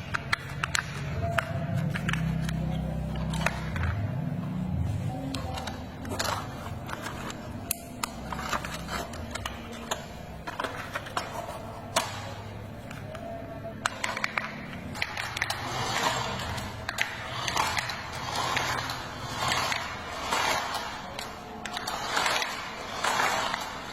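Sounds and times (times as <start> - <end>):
plastic toy truck clicking: 0.0 - 4.2, 5.1 - 23.9.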